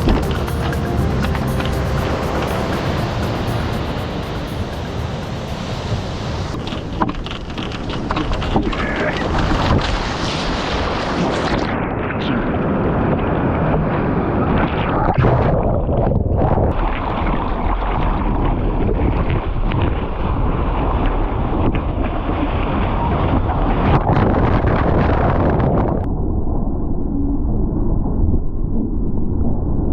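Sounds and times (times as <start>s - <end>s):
ocean surf breaking: 0.0s - 11.7s
wind buffeting microphone: 1.6s - 27.1s.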